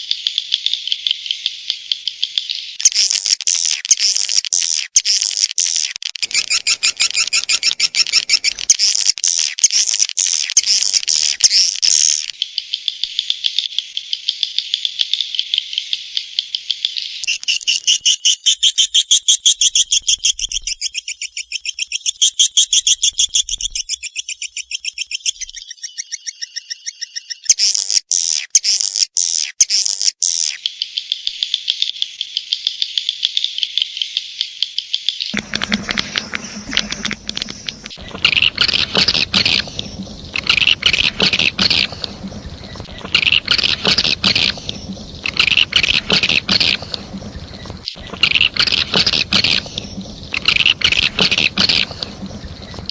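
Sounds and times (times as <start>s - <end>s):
swiftlet chirping trills: 35.4s - 52.9s.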